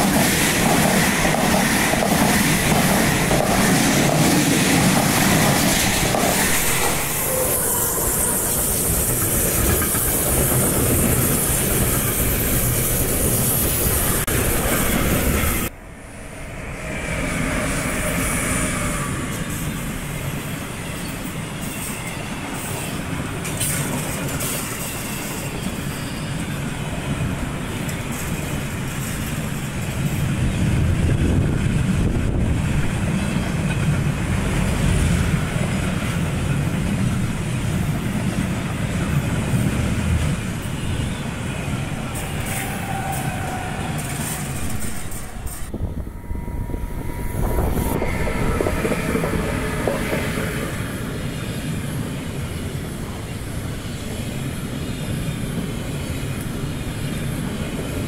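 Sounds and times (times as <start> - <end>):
electric locomotive rumbling: 0.0 - 58.0
freight train wheels clattering: 46.6 - 51.8.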